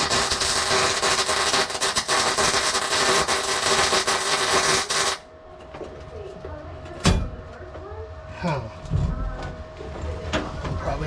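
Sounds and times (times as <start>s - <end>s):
welder arc crackling: 0.0s - 5.3s.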